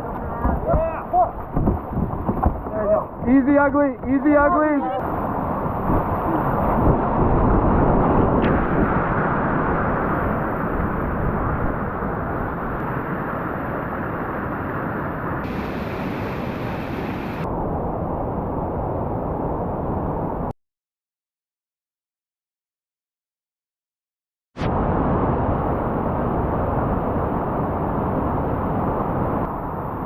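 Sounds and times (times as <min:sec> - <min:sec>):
river rapid whitewater rushing: 0:14.8 - 0:17.5.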